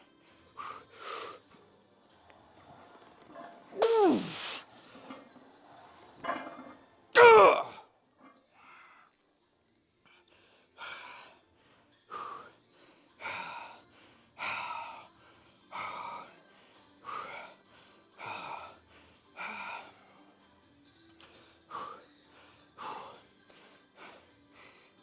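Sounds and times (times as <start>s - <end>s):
man breathing hard: 3.8s - 4.6s.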